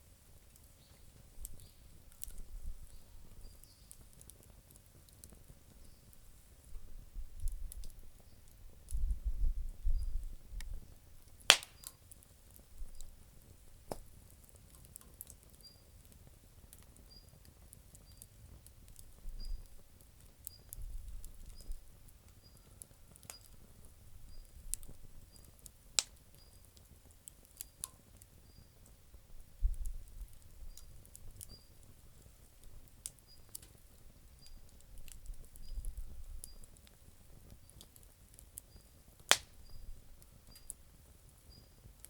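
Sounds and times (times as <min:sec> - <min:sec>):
campfire crackling: 0:00.0 - 0:42.0
sharp pops of fire: 0:10.0 - 0:15.7, 0:16.6 - 0:28.9, 0:29.6 - 0:42.0.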